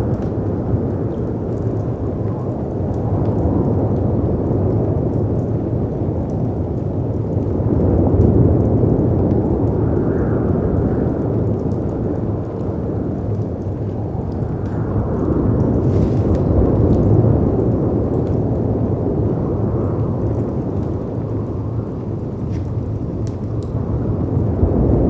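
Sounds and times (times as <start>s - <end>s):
fireplace crackles: 0.0s - 25.0s
wind rushing: 9.4s - 25.0s.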